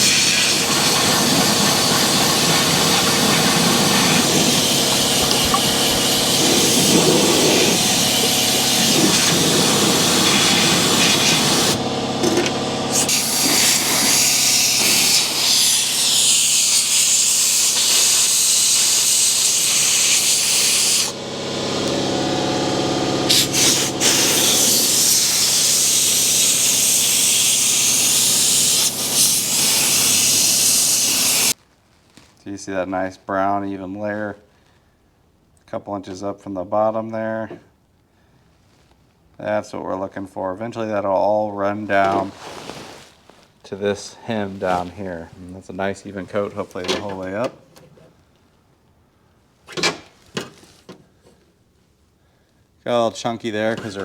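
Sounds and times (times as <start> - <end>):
spray gun hissing: 0.0 - 31.6.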